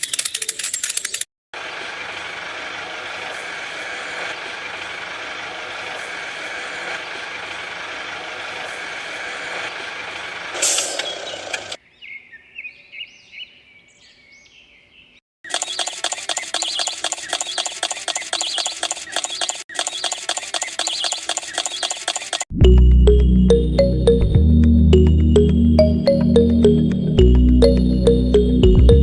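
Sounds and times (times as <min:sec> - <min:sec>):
truck running with rushing noise: 0:01.6 - 0:11.8
air brake hiss: 0:10.6 - 0:11.1.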